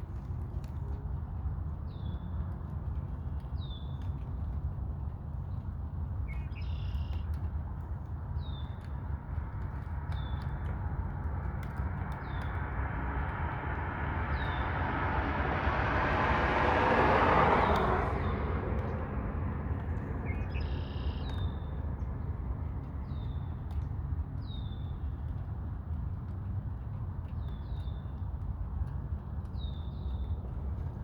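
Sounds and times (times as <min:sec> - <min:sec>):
steady low rumble: 0:08.2 - 0:25.2
bird chirping: 0:20.2 - 0:21.7.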